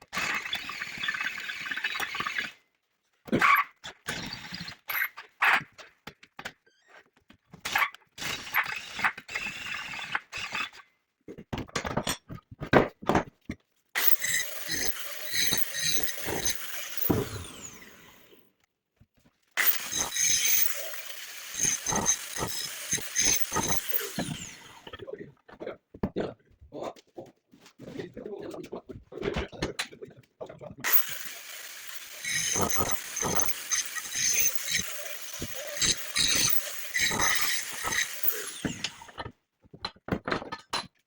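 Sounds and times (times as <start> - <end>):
power tool running: 14.0 - 18.4, 19.6 - 25.0, 30.8 - 39.2.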